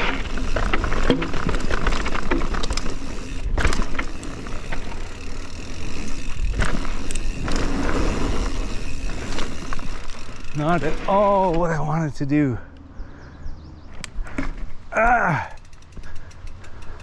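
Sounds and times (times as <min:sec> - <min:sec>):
bike rattling over bumps: 0:00.0 - 0:12.2, 0:13.8 - 0:17.0
tyres rolling on dirt: 0:00.0 - 0:12.6.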